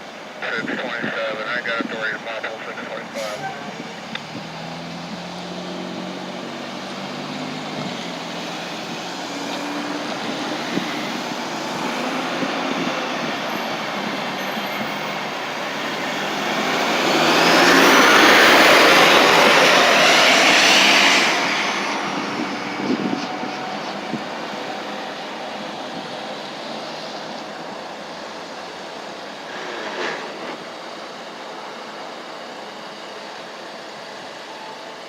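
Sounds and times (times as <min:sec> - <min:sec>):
steady engine tone: 0:00.3 - 0:35.0
vehicle passing close by: 0:03.7 - 0:31.5.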